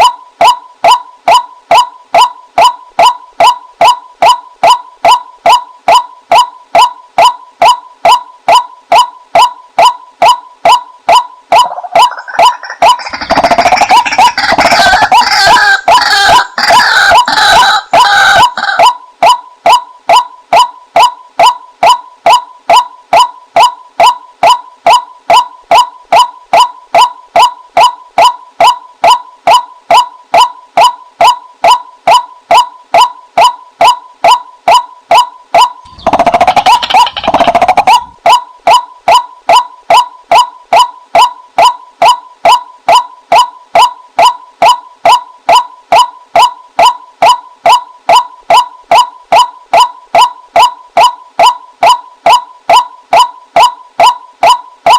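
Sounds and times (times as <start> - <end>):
harsh bird chattering: 11.6 - 18.9, 35.8 - 38.2.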